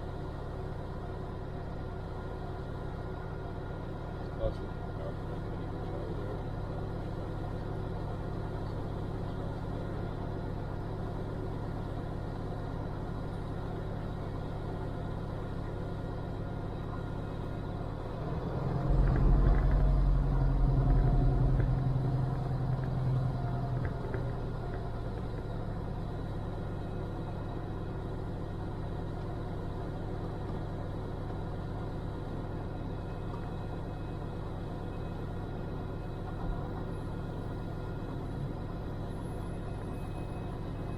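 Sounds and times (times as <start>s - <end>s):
louder low rumble: 18.5s - 24.4s.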